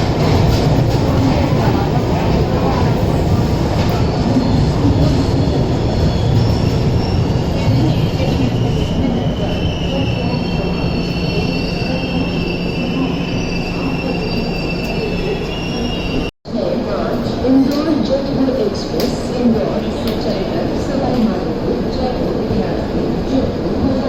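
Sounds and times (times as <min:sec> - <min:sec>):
train rumbling on rails: 0:00.0 - 0:16.3
train wheels squealing: 0:05.8 - 0:16.3.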